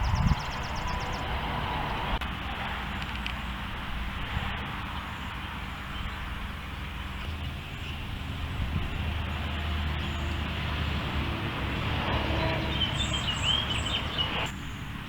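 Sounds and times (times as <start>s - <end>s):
bird chirping: 0.0s - 2.1s, 12.4s - 14.9s
road traffic rumble: 0.0s - 15.0s.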